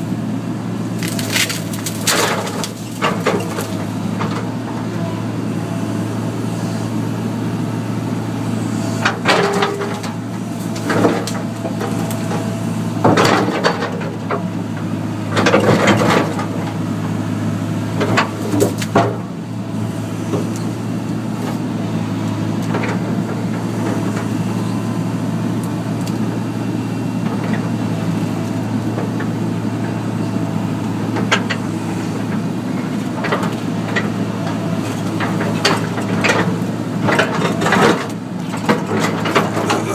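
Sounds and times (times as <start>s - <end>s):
excavator diesel engine running: 0.0s - 39.9s
tree branch cracking and scraping: 0.9s - 4.0s.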